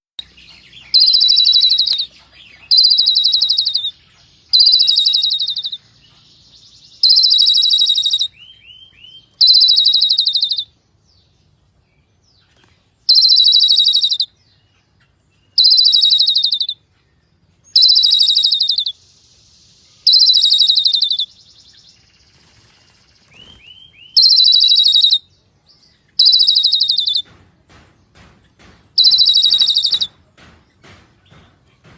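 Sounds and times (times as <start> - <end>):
bird high call: 0.2 - 6.2, 6.8 - 10.8, 13.1 - 14.4, 15.5 - 16.8, 17.7 - 19.0, 20.0 - 21.9, 23.2 - 25.3, 26.1 - 27.4, 28.9 - 30.2
faint short chirps: 17.8 - 19.0, 20.0 - 21.3, 29.0 - 30.1.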